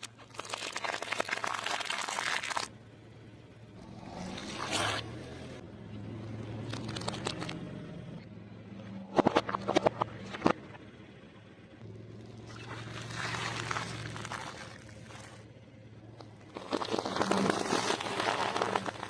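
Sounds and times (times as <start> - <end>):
food crunching under tyre: 0.0 - 2.7, 6.6 - 7.6, 12.5 - 15.4, 16.4 - 19.0
wet squishing: 0.0 - 2.7, 6.6 - 7.6, 12.4 - 15.5, 16.4 - 19.0
car engine hum: 2.6 - 19.0.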